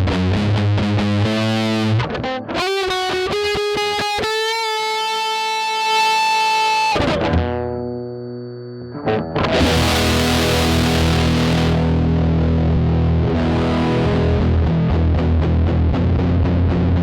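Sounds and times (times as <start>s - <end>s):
distorted electric guitar: 0.0s - 17.0s.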